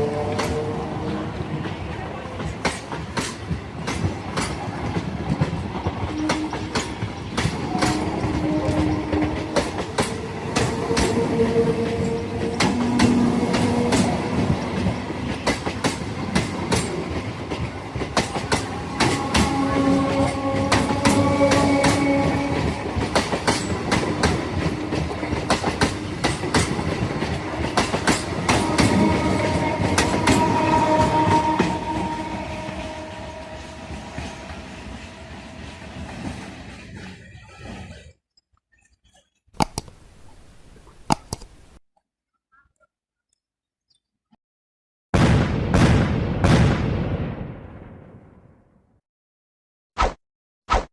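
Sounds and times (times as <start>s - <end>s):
train rumble: 0.0s - 38.1s
train wheels clattering over rail joints: 2.4s - 11.2s, 22.6s - 29.0s.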